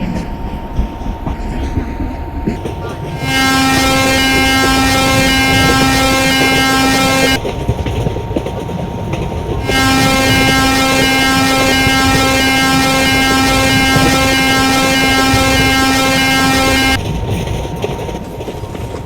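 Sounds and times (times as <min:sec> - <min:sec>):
train running rumble: 0:00.0 - 0:19.0
locomotive air horn blasts: 0:03.1 - 0:07.5, 0:09.6 - 0:17.1.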